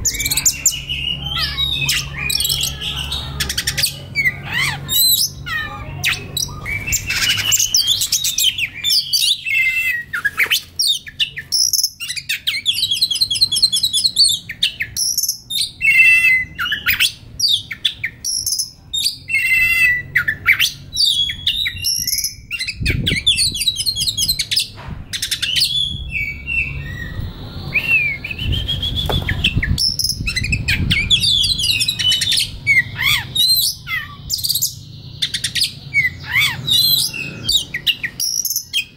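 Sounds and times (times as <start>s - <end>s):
bird singing whistled phrases: 0.0s - 38.9s
low rumble: 25.8s - 31.8s.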